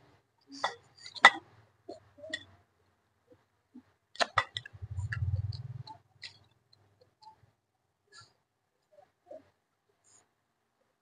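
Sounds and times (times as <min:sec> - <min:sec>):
low hum: 0:04.7 - 0:06.0.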